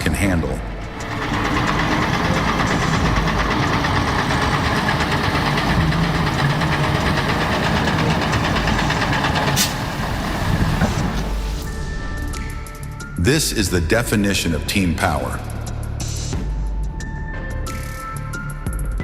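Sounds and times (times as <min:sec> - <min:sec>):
truck diesel engine running hard: 0:00.0 - 0:11.7.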